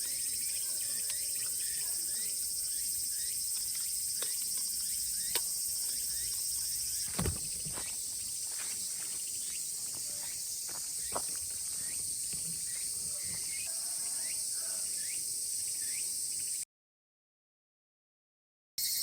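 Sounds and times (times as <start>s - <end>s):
cicadas chorus: 0.0s - 16.6s, 18.8s - 19.0s
low thump: 7.1s - 7.9s.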